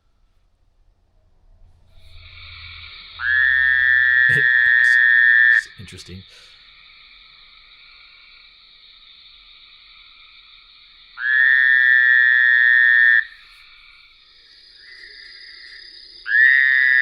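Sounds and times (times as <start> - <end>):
chorus of toad calls: 2.1 - 17.0
toad nasal buzz call: 3.2 - 6.5.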